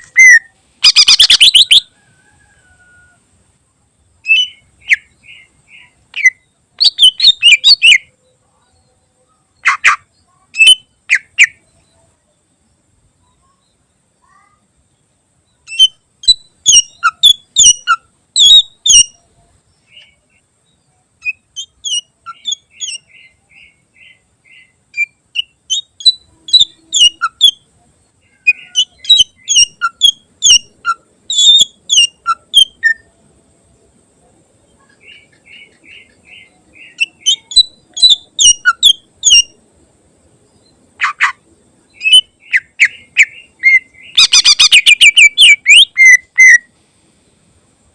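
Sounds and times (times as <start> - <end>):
bird singing sharp rapid notes: 0.0 - 1.8, 9.6 - 11.8, 42.0 - 46.7.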